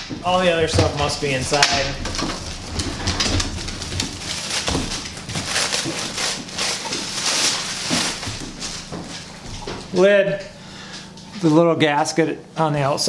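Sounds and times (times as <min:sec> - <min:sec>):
knocks: 0:00.0 - 0:05.2
cardboard and foam rustling: 0:00.0 - 0:10.0.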